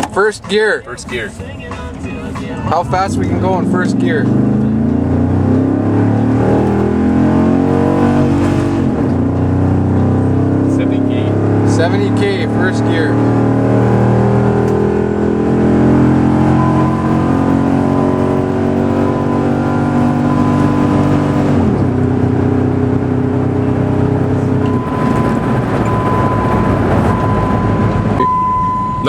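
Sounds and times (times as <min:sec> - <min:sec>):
road and wind noise: 0:00.0 - 0:29.0
pickup truck engine revving: 0:02.0 - 0:29.0
thin steady high tone: 0:16.1 - 0:21.2.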